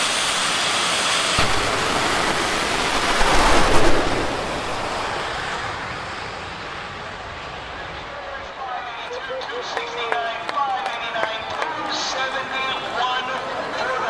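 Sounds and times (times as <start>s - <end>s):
jet turbine engine whine: 0.0s - 9.8s.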